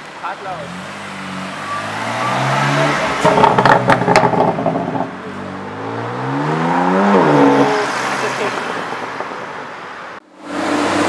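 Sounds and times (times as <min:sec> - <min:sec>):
car engine accelerating: 0:00.5 - 0:08.7.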